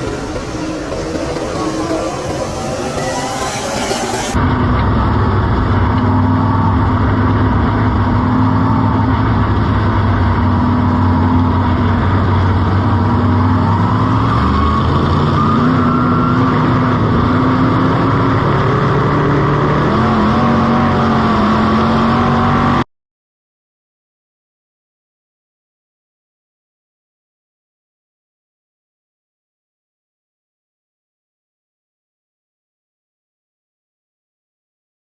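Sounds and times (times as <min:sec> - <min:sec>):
race car engine revving: 0:00.0 - 0:22.8.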